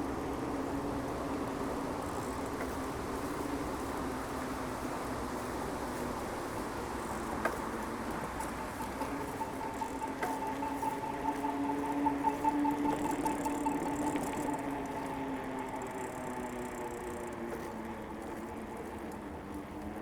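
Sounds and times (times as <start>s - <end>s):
bicycle tyres rolling on pavement: 0.0s - 20.0s
bicycle clicks and rattles: 12.7s - 20.0s.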